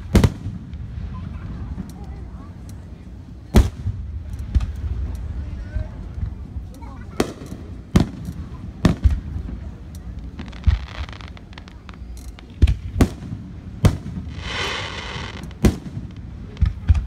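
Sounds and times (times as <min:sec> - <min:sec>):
fireworks bursting: 0:00.0 - 0:02.4, 0:03.5 - 0:05.1, 0:07.0 - 0:17.0
firework hiss: 0:10.2 - 0:16.9.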